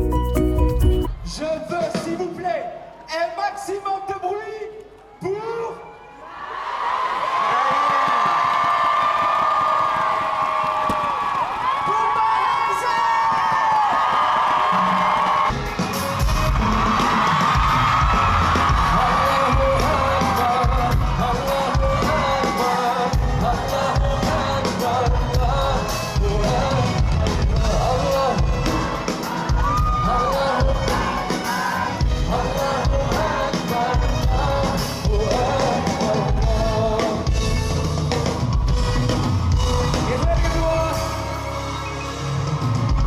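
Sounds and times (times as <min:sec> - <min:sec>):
live band music: 0:00.0 - 0:02.4, 0:15.0 - 0:43.0
crowd cheering: 0:04.9 - 0:37.3, 0:37.9 - 0:43.0.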